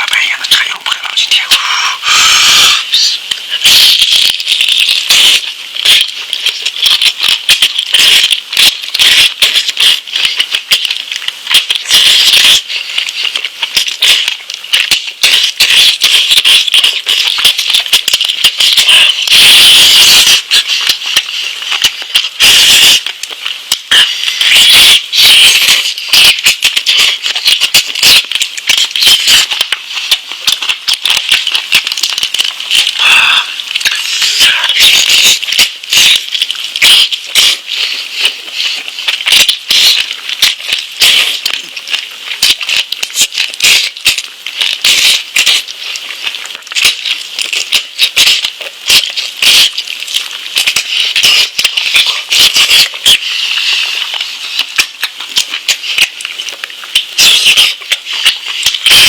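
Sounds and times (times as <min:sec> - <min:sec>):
person chewing meat: 0:32.4 - 0:57.0.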